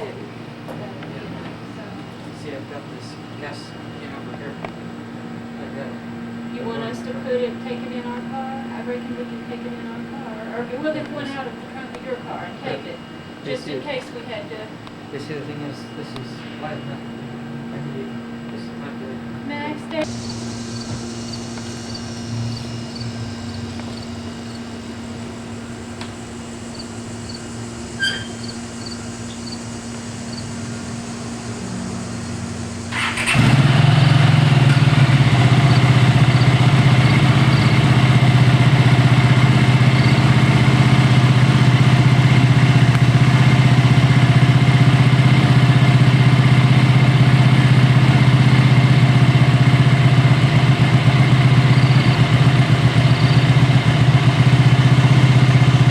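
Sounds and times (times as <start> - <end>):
motorcycle engine running: 20.0 - 55.9.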